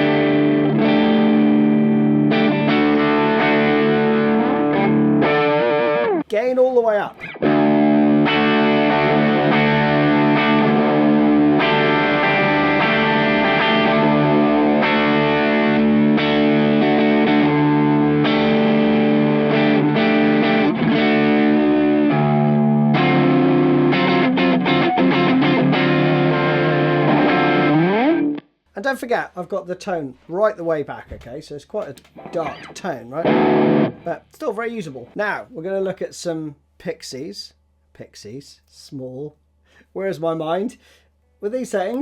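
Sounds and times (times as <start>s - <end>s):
distorted electric guitar chords: 0.0s - 6.3s, 7.2s - 28.5s, 32.0s - 34.3s.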